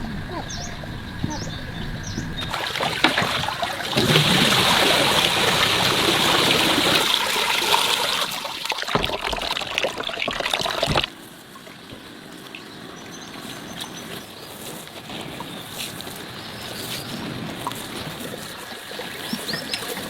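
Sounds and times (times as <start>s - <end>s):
water running and splashing: 2.4s - 12.6s, 17.3s - 20.0s.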